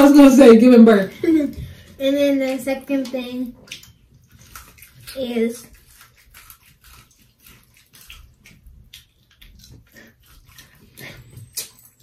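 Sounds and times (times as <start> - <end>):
wet chewing clicks: 1.7 - 12.0
lip smacks: 3.6 - 12.0.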